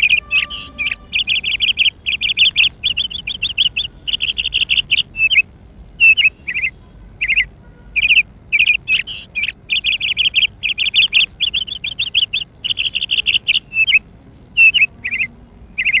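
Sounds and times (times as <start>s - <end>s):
small bird chirping: 0.0s - 16.0s.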